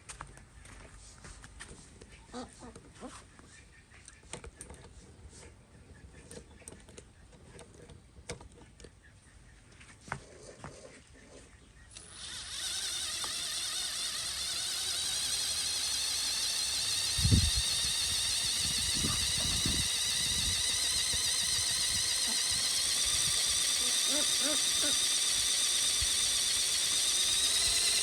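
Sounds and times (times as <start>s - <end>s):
electric motor whine: 11.9s - 28.0s.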